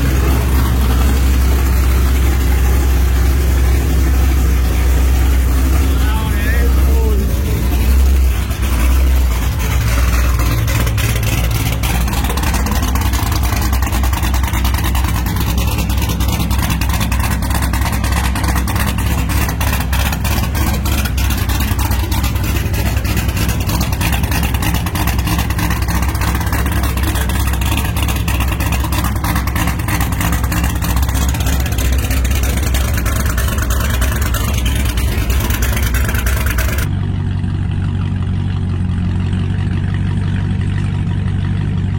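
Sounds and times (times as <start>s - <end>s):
loud car engine running: 0.0s - 41.9s.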